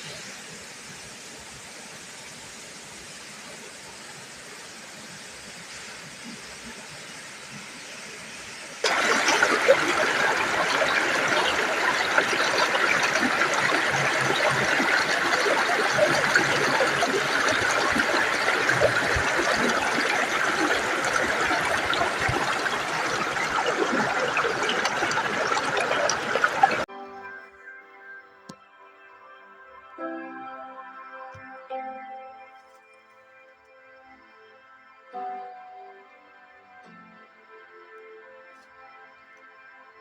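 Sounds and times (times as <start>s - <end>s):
waterfall rushing and splashing: 0.0s - 26.9s.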